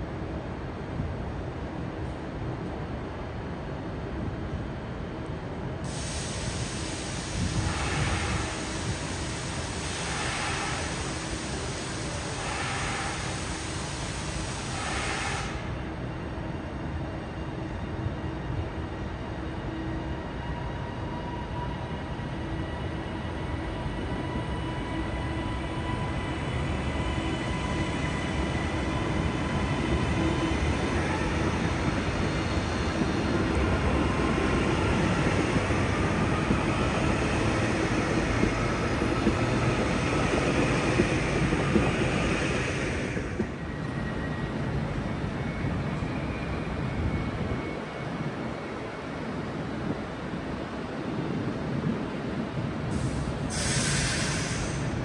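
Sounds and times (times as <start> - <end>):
train rail rumble: 5.8 - 16.2.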